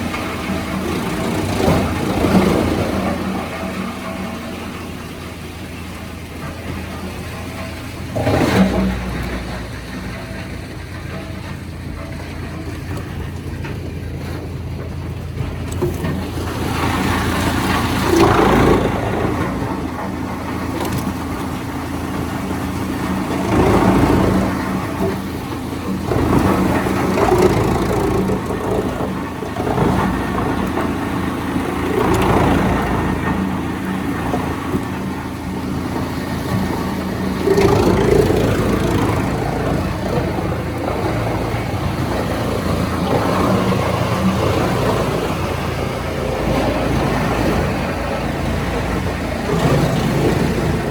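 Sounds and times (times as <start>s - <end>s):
sawmill machinery engine drone: 0.0s - 50.9s.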